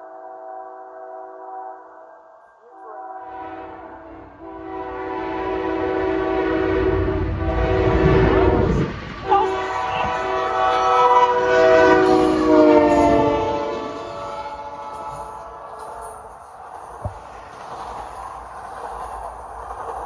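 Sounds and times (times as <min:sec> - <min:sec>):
locomotive air horn blasts: 0:02.7 - 0:16.3.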